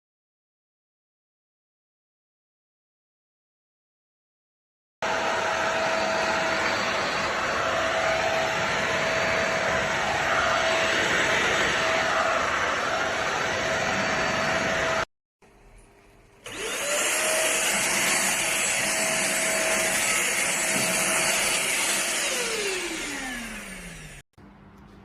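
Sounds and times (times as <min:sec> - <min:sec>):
vacuum cleaner motor whine: 0:05.0 - 0:15.1, 0:16.4 - 0:24.2.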